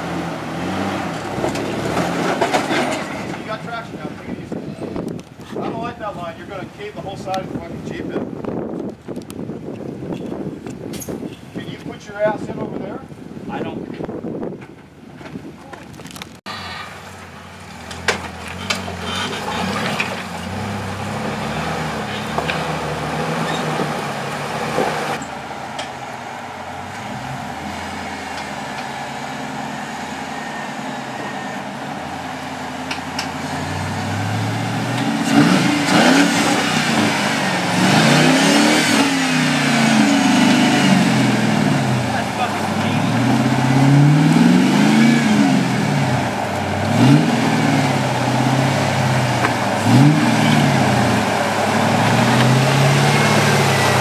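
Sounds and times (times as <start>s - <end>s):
engine revving up and down: 0.0s - 3.6s, 17.7s - 25.2s, 26.7s - 54.0s.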